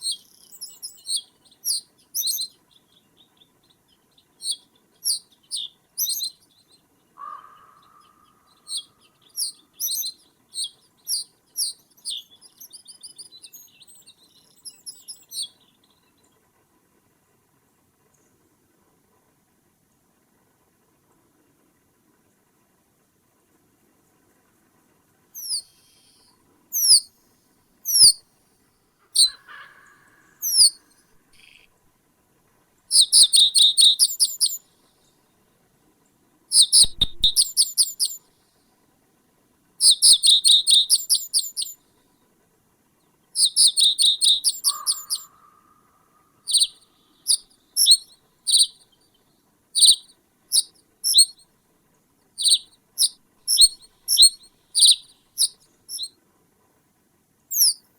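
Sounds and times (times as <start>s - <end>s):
small bird calling high notes: 25.4s - 27.1s, 27.9s - 28.2s, 29.2s - 31.6s, 36.6s - 38.2s, 39.8s - 41.7s, 43.4s - 48.8s, 49.8s - 51.4s, 52.4s - 56.1s, 57.5s - 57.8s.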